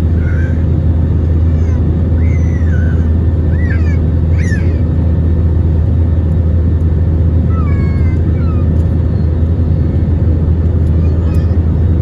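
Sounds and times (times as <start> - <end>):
airliner engine roar: 0.0 - 12.0.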